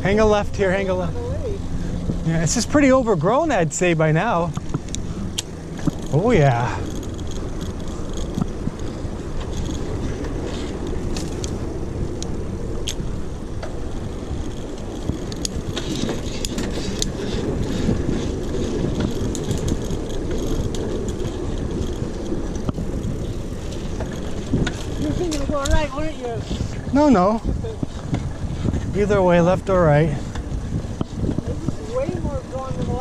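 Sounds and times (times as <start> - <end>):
bike tyres rolling: 0.0 - 33.0
sharp ticks and rattles: 0.0 - 33.0
wind on microphone: 0.0 - 33.0.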